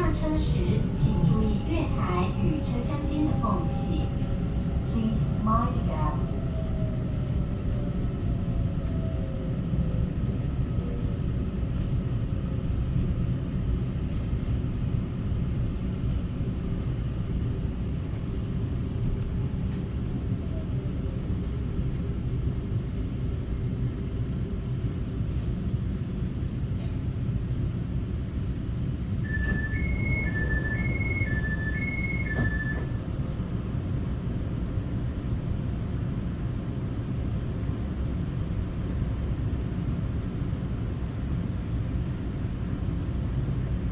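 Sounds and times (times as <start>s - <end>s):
high two-note signal: 29.3s - 33.0s
train wheels rumbling: 29.3s - 34.4s.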